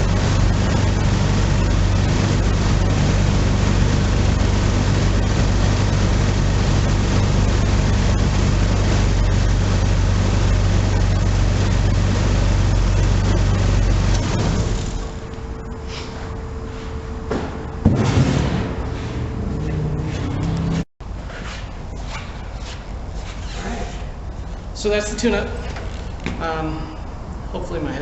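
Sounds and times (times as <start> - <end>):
car engine idling: 0.0 - 17.8.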